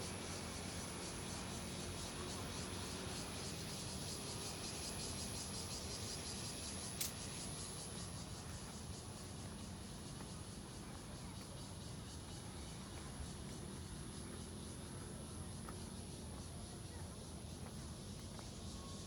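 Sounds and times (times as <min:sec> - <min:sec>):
insects pulsing chorus: 0:00.0 - 0:19.0
sharp click: 0:07.0 - 0:07.2.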